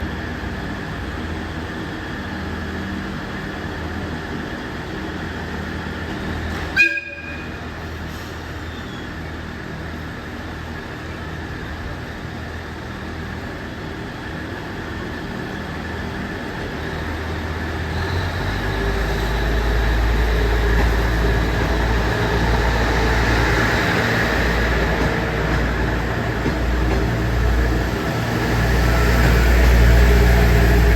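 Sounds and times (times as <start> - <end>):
train humming: 0.0 - 30.9
train rumbling: 0.0 - 30.9
train horn toot: 6.8 - 7.6.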